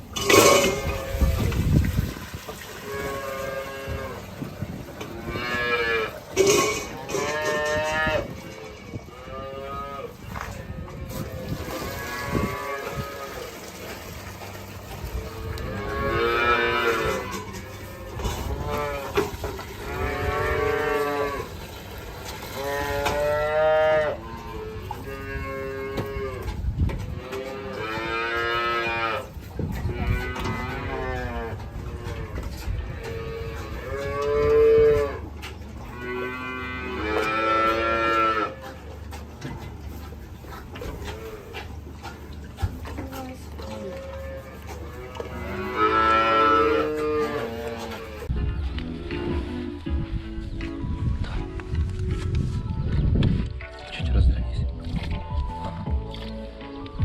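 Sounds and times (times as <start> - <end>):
cattle mooing: 2.8 - 8.5, 15.2 - 21.6, 22.5 - 26.5, 27.1 - 39.0, 43.0 - 48.3.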